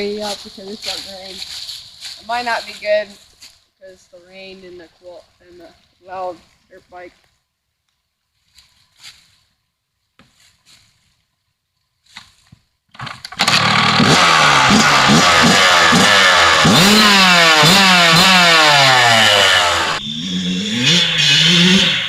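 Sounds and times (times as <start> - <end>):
dirt bike engine revving: 13.4 - 22.0.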